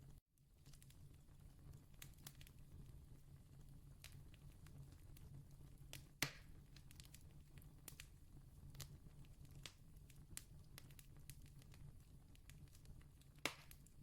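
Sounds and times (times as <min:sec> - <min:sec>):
campfire crackling and popping: 0:00.6 - 0:14.0
loud fire snap: 0:13.3 - 0:13.9.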